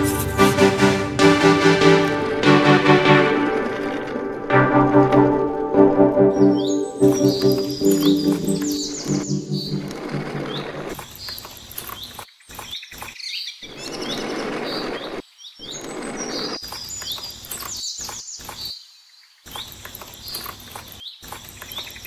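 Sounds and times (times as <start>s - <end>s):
small birds chirping: 6.3s - 22.0s
steady outdoor noise: 6.9s - 13.9s.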